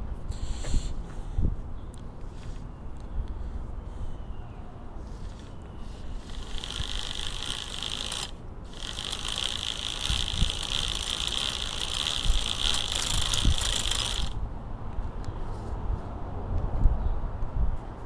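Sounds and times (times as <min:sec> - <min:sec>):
bicycle freehub clicking: 0:05.9 - 0:14.4.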